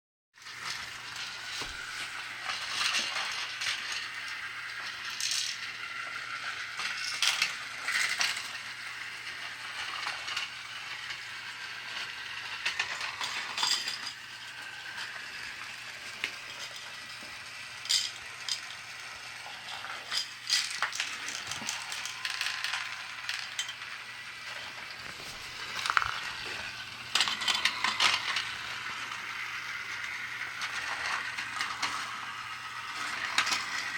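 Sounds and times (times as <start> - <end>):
small electric motor humming: 0.4 - 33.9
plastic parts clicking and rattling: 24.6 - 28.6.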